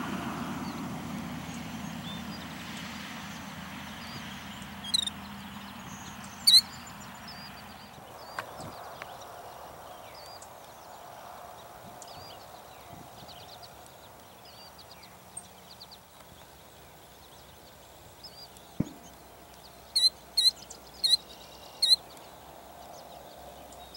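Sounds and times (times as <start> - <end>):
songbirds singing: 0.0 - 23.9
loud sharp bird calls: 1.4 - 23.9.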